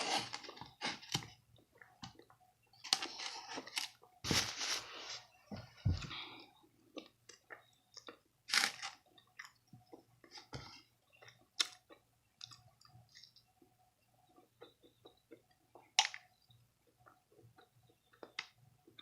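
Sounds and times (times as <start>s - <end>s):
person chewing food: 6.1s - 19.0s.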